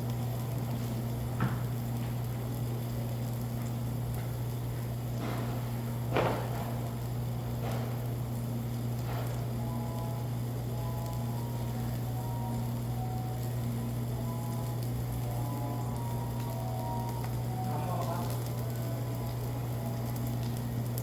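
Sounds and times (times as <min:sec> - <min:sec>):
low hum of dining room: 0:00.0 - 0:21.0.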